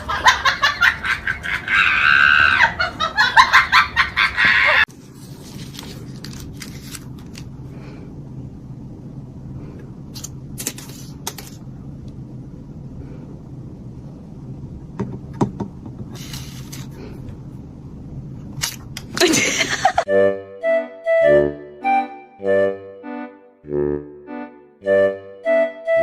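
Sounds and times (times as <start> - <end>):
steady low hum: 4.9 - 20.3.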